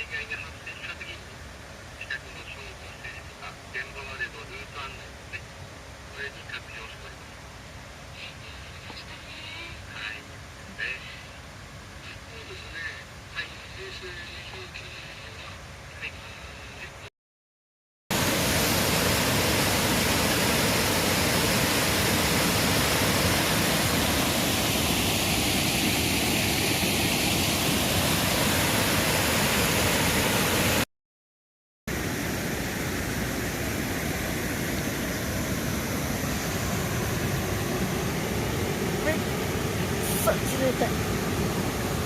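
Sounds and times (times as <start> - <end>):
rushing mountain river water: 18.1 - 30.8.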